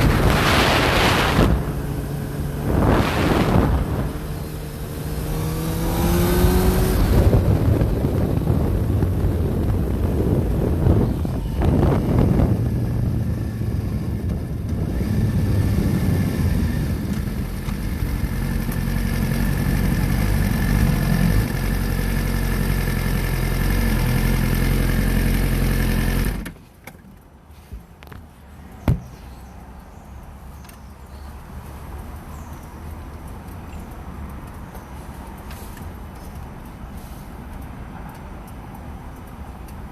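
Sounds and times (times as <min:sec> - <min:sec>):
wind hiss: 0:00.0 - 0:21.8
motorcycle engine running: 0:00.0 - 0:26.4.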